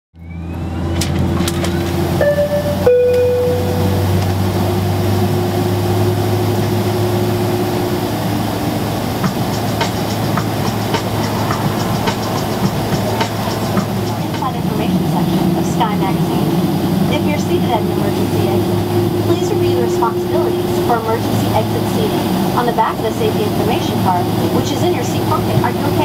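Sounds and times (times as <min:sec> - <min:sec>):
airliner cabin hum: 0:00.2 - 0:26.0
two-note chime: 0:02.2 - 0:04.4.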